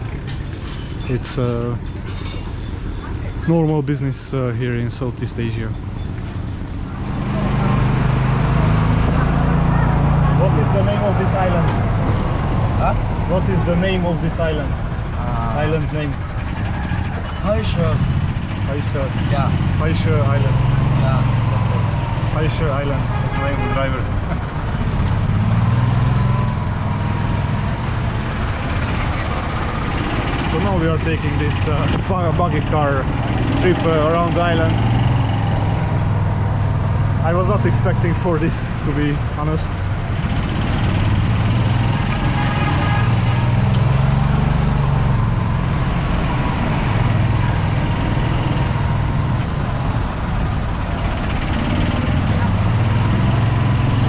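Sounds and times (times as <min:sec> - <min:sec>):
buggy engine droning: 0:00.0 - 0:54.0
road and wind noise: 0:00.0 - 0:54.0
small car engine running: 0:37.1 - 0:54.0.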